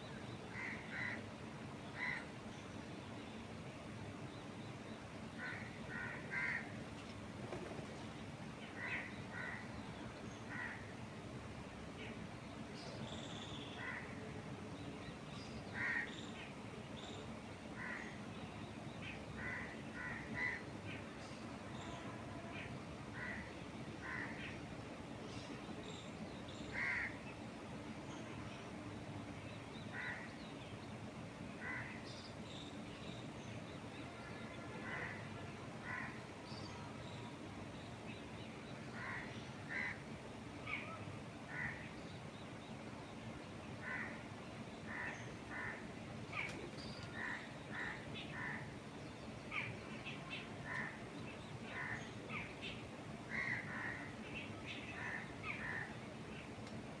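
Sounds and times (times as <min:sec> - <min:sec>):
wind hissing in trees: 0:00.0 - 0:57.0
crow cawing: 0:00.6 - 0:01.2, 0:05.4 - 0:06.8, 0:10.5 - 0:10.9, 0:15.8 - 0:16.1, 0:17.8 - 0:18.1, 0:19.4 - 0:20.6, 0:23.2 - 0:24.5, 0:26.7 - 0:27.2, 0:39.0 - 0:40.0, 0:41.5 - 0:41.8, 0:43.8 - 0:44.2, 0:44.9 - 0:45.8, 0:53.3 - 0:54.1
birds calling harshly: 0:04.5 - 0:10.9, 0:15.4 - 0:22.0, 0:25.4 - 0:27.4, 0:43.7 - 0:56.6.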